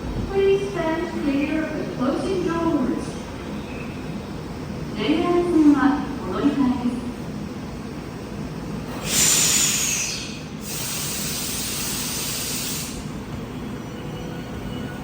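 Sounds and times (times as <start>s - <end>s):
compressed air hissing: 8.9s - 13.1s.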